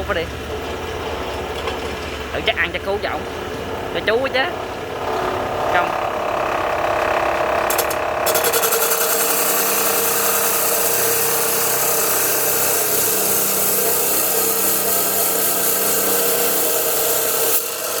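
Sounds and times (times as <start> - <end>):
metal saw grinding steel: 4.8 - 18.0.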